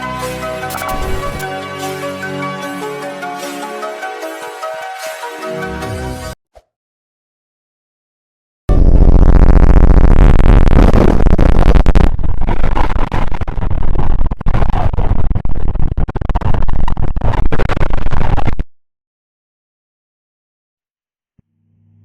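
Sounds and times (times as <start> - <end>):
distorted jump-scare noise: 0.6 - 1.6, 8.7 - 16.4.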